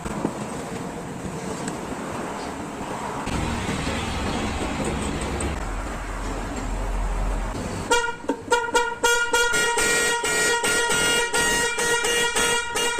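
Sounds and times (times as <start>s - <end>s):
vehicle rumble: 0.0s - 8.9s
car horn short honks: 7.9s - 12.9s.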